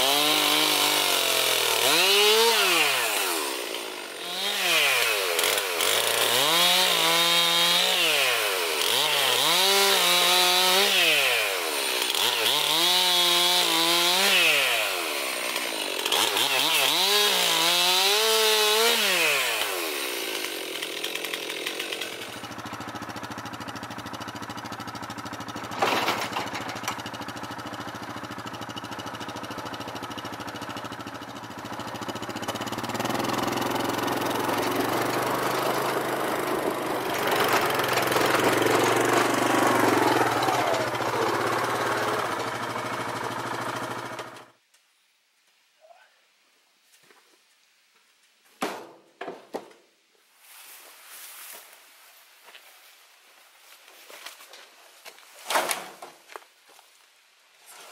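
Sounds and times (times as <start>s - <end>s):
chainsaw cutting wood and revving: 0.0s - 44.6s
chainsaw idling: 0.0s - 44.6s.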